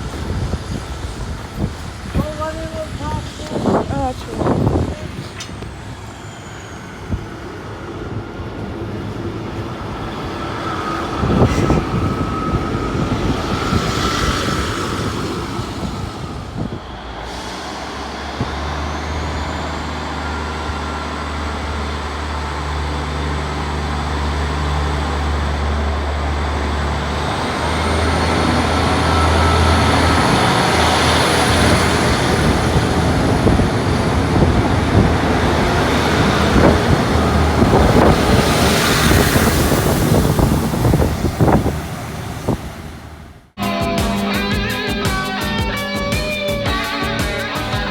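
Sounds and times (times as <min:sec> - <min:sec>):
diesel train engine drone: 0:00.0 - 0:47.9
high whine gliding up: 0:00.0 - 0:47.9.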